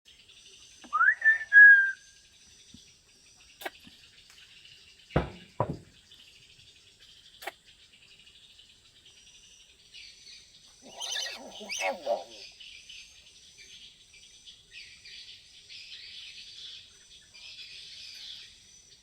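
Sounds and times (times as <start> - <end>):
faint steady high hiss: 0.1 - 19.0
parrot whistling: 10.8 - 12.5.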